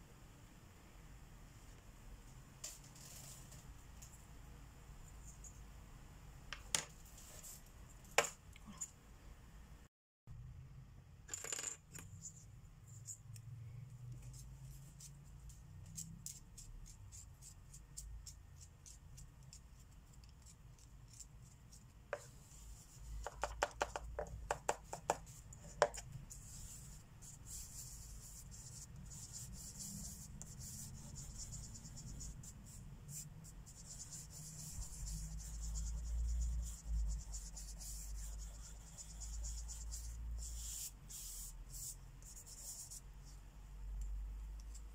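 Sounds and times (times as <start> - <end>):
markers scratching on paper: 14.2 - 43.4.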